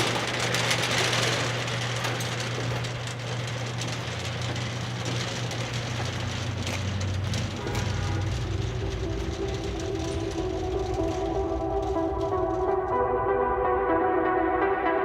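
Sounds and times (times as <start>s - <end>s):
car engine humming: 0.0s - 15.0s
music with sustained notes: 7.1s - 15.0s.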